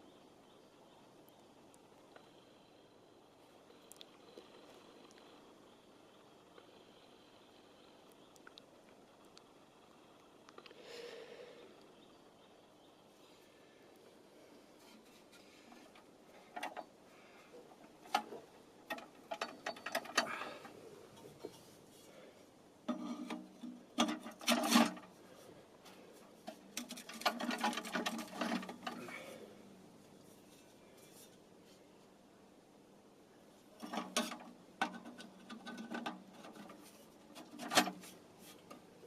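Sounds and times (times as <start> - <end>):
stove handling clicks and rattles: 14.9 - 17.0, 17.6 - 21.6, 22.9 - 25.1, 26.4 - 29.2, 33.8 - 38.8.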